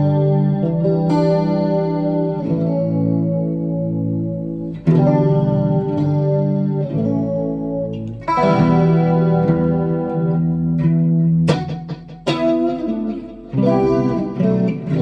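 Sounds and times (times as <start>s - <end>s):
electric guitar with effects: 0.0s - 15.0s.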